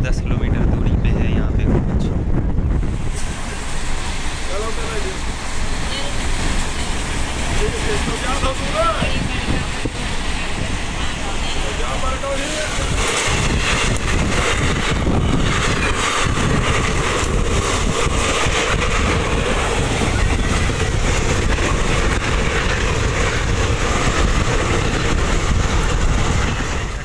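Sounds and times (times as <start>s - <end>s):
passing passenger train: 0.0s - 27.0s
train wheels rumbling on rails: 0.0s - 27.0s.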